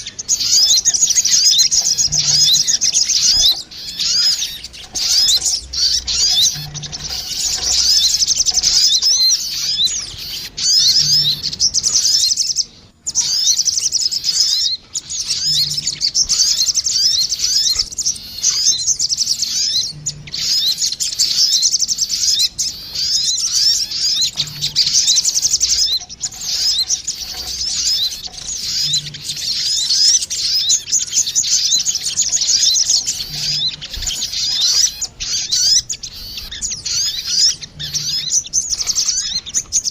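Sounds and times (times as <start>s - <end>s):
birds chattering trills: 0.0s - 39.9s.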